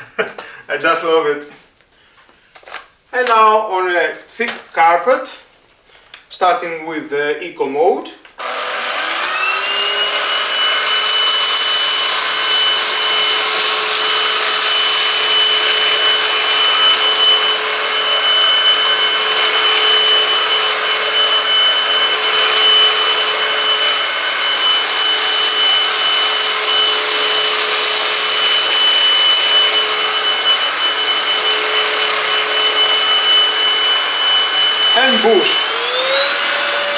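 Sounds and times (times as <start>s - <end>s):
vacuum cleaner motor whine: 8.4s - 36.9s.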